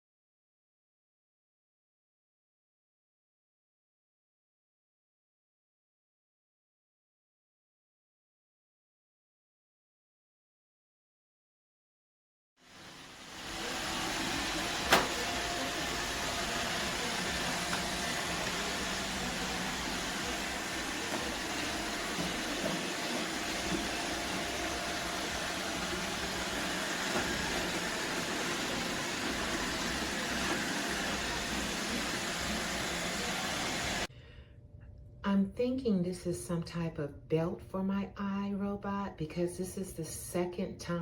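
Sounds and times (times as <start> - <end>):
robot vacuum whirring: 12.8 - 34.1.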